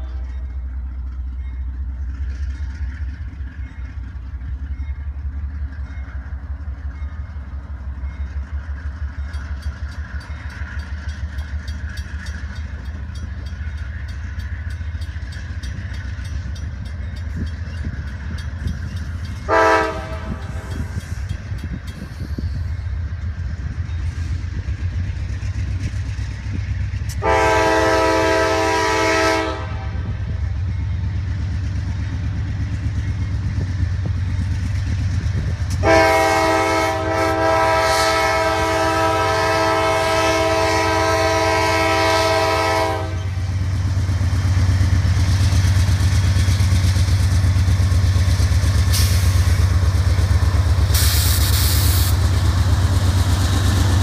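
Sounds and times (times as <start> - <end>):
diesel engine rumble: 0.0 - 37.7, 38.4 - 54.0
locomotive air horn chord: 19.5 - 20.9, 27.1 - 30.2, 35.8 - 43.5
brief hiss: 50.9 - 52.2.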